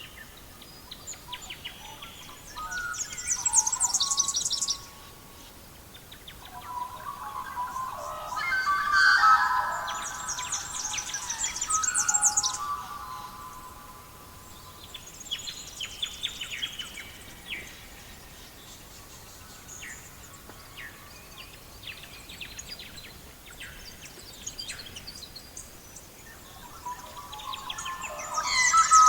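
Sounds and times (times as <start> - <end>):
faint steady hiss: 0.0 - 29.0
birds chirping: 6.4 - 17.8, 26.6 - 29.0.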